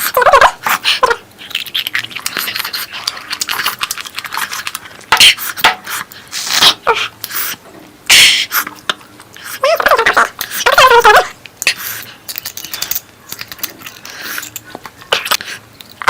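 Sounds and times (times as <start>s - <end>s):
wet chewing and lip smacking: 0.6s - 7.6s.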